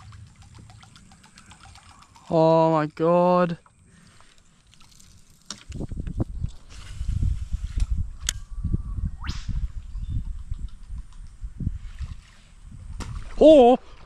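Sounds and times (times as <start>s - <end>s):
fishing reel whirr: 0.0s - 2.7s, 3.6s - 9.8s.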